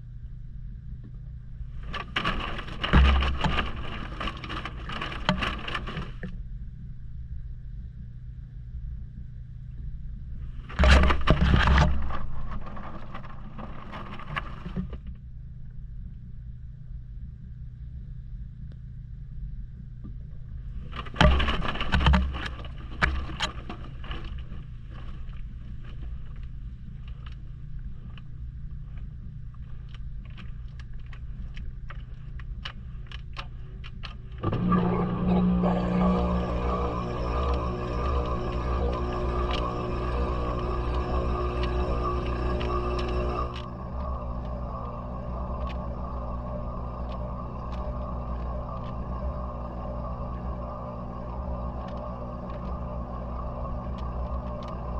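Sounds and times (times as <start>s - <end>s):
washing machine motor hum: 1.4s - 6.3s, 10.4s - 15.0s, 20.6s - 27.2s, 34.2s - 54.9s
water sloshing: 1.7s - 6.3s.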